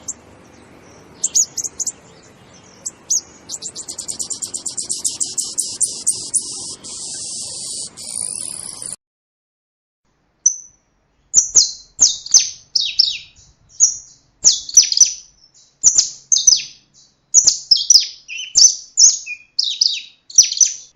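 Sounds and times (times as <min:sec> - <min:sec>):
songbird singing: 0:00.0 - 0:09.0, 0:10.4 - 0:20.9.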